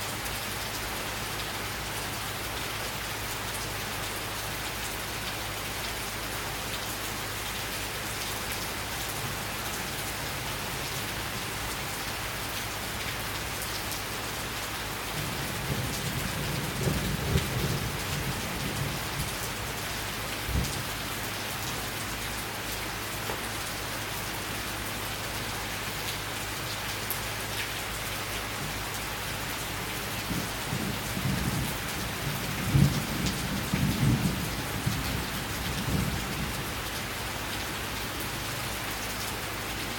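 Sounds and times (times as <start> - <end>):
steady rain: 0.0 - 39.9
low thunder rumbling: 15.1 - 19.8, 30.3 - 36.8.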